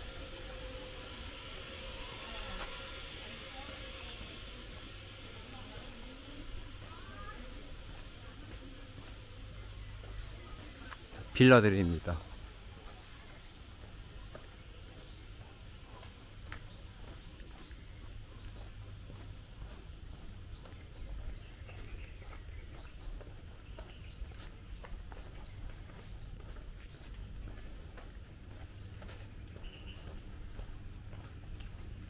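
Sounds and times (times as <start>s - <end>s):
small birds chirping: 4.8s - 32.0s.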